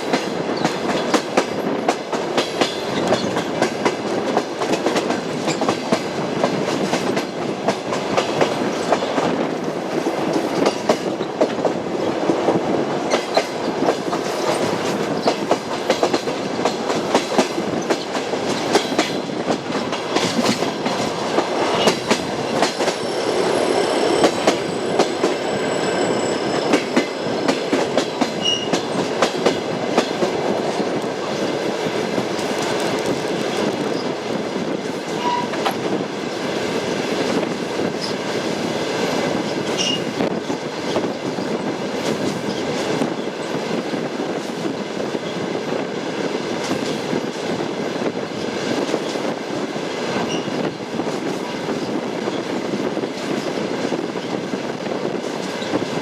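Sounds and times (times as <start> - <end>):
train wheels clacking: 0.0 - 44.8
railway car rumble: 0.0 - 56.0.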